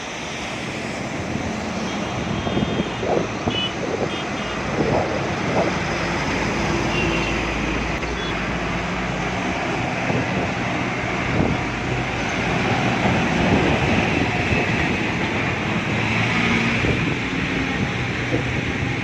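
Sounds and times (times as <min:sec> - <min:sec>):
car engine and tyre noise: 0:00.0 - 0:19.0.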